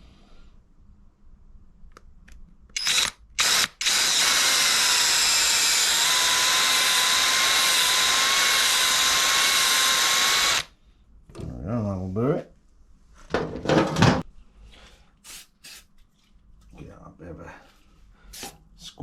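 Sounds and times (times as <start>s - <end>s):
power drill whining: 2.8s - 10.7s.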